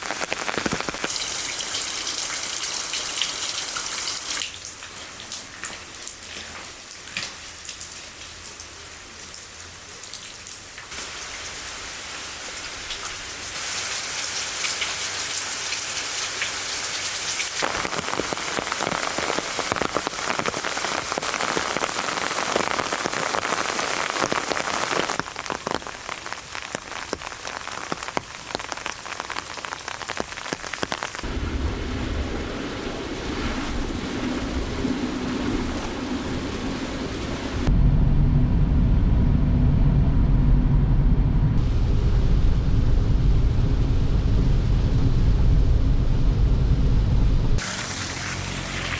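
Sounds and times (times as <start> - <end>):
heavy rain falling: 0.0 - 37.7, 47.6 - 48.9.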